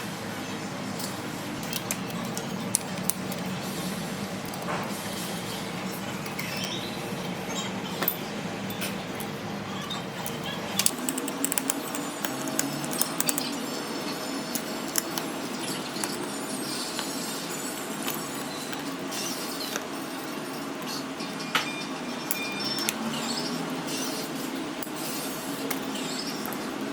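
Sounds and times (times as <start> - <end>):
steady background hum: 0.0 - 26.9
hard objects clicking and clinking: 1.0 - 17.2.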